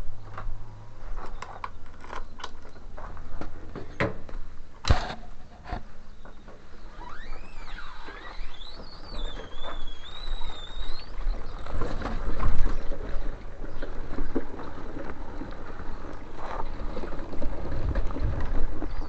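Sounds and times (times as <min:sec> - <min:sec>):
wind rumble on microphone: 0:08.6 - 0:19.0.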